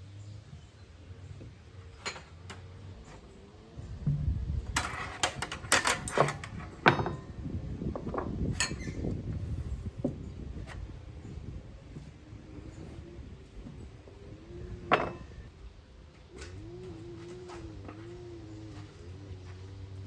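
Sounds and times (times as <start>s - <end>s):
hard objects knocking and clattering: 4.0s - 8.8s.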